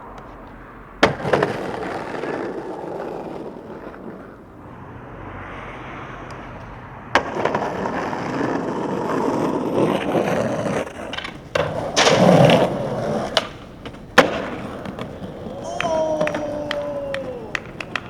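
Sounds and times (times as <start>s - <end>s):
skateboard knocks and scraping: 0.0s - 4.4s, 7.1s - 18.0s
skateboard wheels rolling on concrete: 0.0s - 18.0s
skateboard pop: 0.1s - 4.2s, 10.0s - 18.0s.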